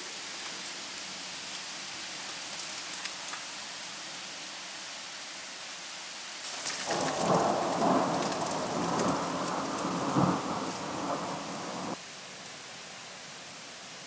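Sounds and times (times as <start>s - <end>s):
rain hissing: 0.0s - 14.0s
thunder rumbling: 6.6s - 12.0s.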